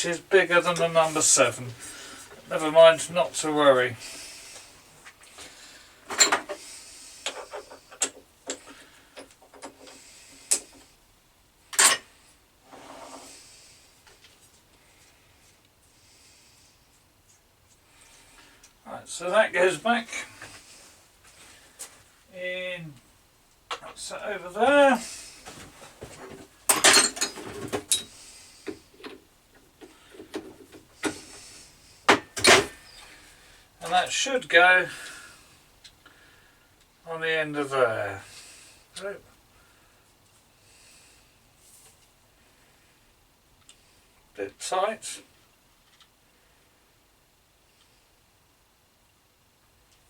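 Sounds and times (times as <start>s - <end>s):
tools scraping against metal: 26.7s - 28.1s.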